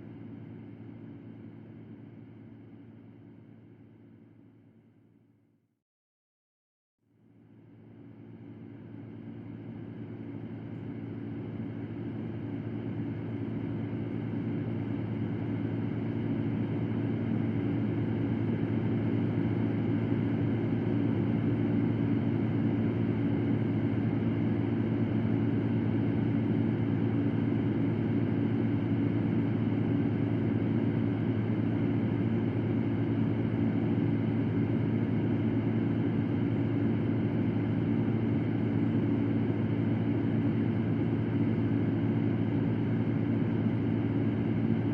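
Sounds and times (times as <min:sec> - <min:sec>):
electric fan running: 0:10.2 - 0:44.9.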